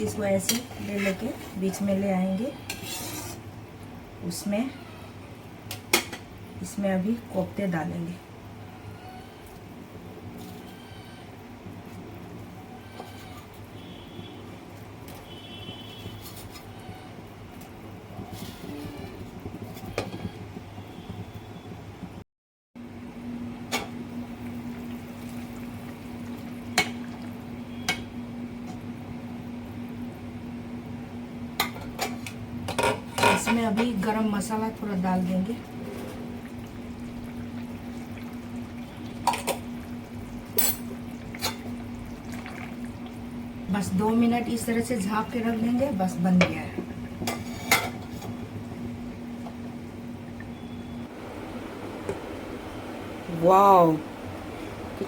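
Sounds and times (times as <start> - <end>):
gravy simmering and bubbling: 23.7 - 43.7.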